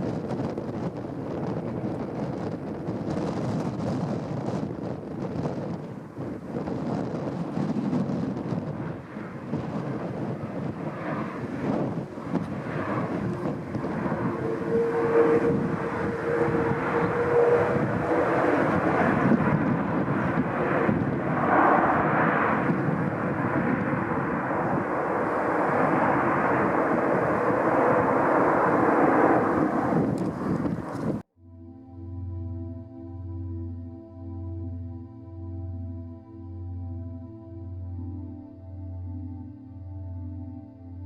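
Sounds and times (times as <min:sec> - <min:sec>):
jet airliner roar: 0:00.0 - 0:31.2
steady hum: 0:05.9 - 0:30.2
higher tone: 0:08.7 - 0:30.3.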